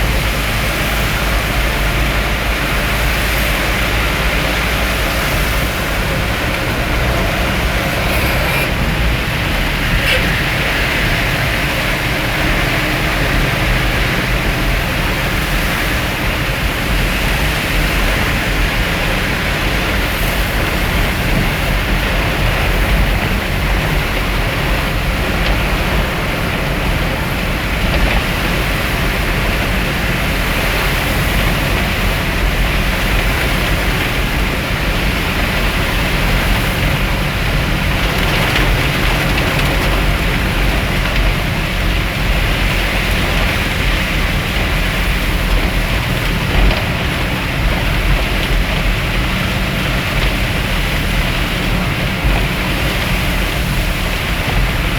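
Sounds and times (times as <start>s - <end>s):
heavy rain falling: 0.0s - 54.9s
vehicle rumbling: 0.0s - 54.9s.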